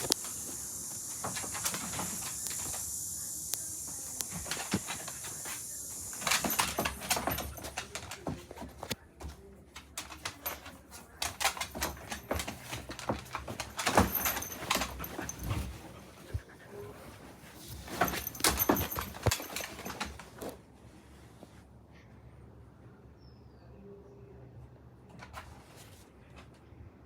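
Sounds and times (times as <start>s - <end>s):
dog claws clicking and scratching: 0.0s - 3.1s, 4.1s - 9.0s, 9.8s - 16.3s, 17.6s - 20.3s.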